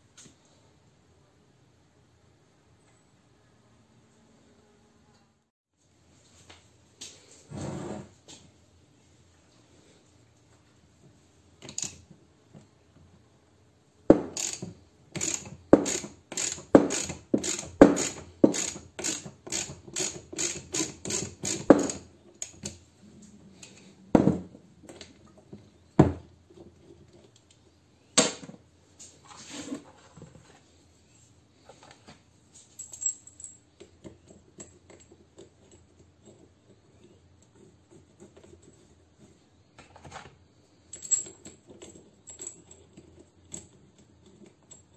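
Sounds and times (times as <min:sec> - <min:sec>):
ratchet wrench clicking: 0:14.3 - 0:22.6.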